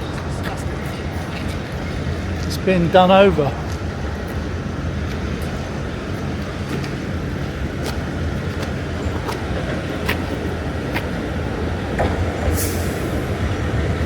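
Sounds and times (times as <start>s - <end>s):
electric trains humming: 0.0s - 14.0s.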